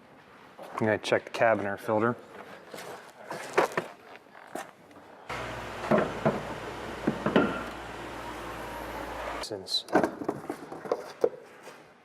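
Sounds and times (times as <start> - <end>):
steady low hum: 5.3 - 9.4.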